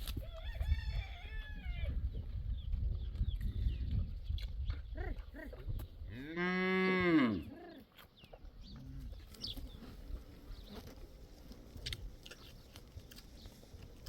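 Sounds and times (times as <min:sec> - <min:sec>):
cow mooing: 0:06.1 - 0:07.6.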